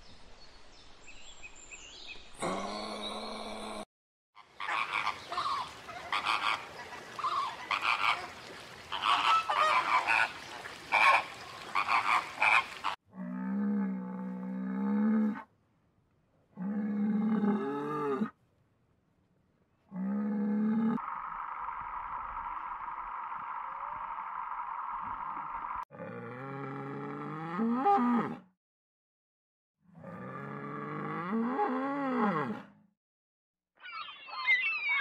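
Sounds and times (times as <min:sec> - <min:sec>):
flamingos honking and gabbling: 0:04.4 - 0:13.0.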